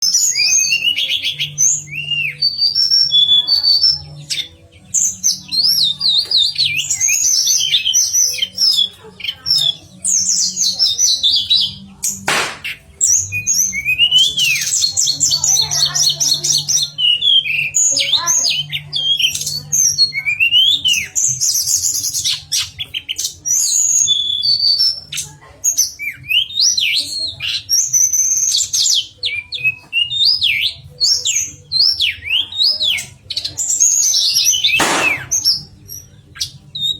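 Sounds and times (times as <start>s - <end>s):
songbird singing trills and whistles: 0.0s - 36.9s
sharp click: 12.3s - 12.8s, 34.8s - 35.4s.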